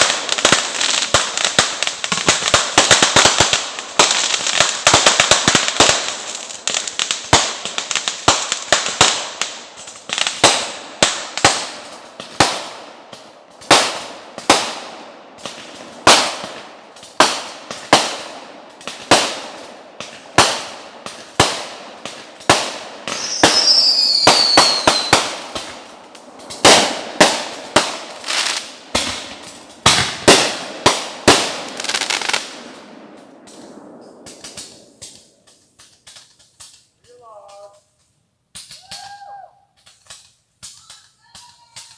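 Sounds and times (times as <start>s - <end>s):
fireworks bangs: 0.0s - 37.8s, 38.5s - 41.9s
falling firework whistle: 23.1s - 25.3s.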